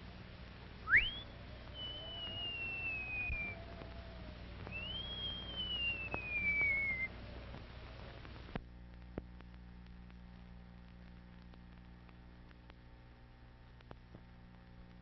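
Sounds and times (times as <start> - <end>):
old film hiss and hum: 0.0 - 15.0
film crackles: 0.2 - 15.0
high whistling tone sliding down: 0.9 - 4.1, 4.7 - 7.1
fainter lower tone: 0.9 - 7.3.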